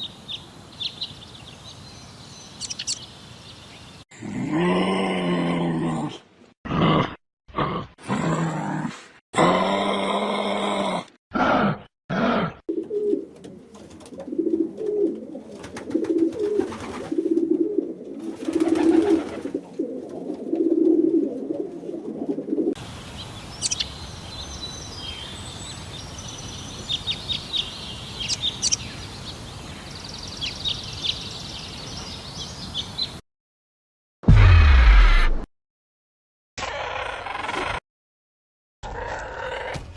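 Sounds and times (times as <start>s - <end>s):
steady outdoor hiss: 0.0s - 4.0s, 22.8s - 33.2s
birds chirping: 0.0s - 4.1s, 22.8s - 33.2s.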